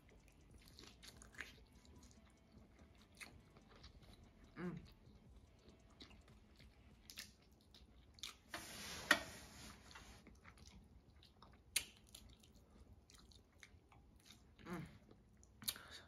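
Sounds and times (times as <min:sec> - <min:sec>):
chewing with wet mouth clicks: 0:00.0 - 0:08.5, 0:10.2 - 0:16.0
rustling noise: 0:08.5 - 0:10.2.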